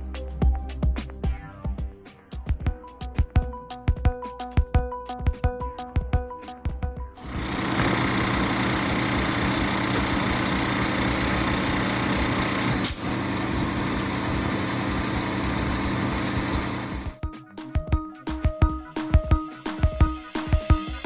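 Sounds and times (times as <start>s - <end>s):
truck diesel engine running: 7.3s - 17.2s.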